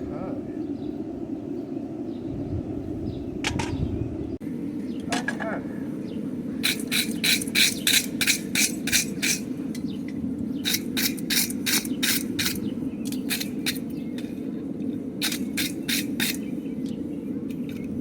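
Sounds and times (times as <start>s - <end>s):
steady low hum: 0.0s - 18.0s
hand tool scraping steel: 6.6s - 10.0s, 10.6s - 14.0s, 15.2s - 16.5s.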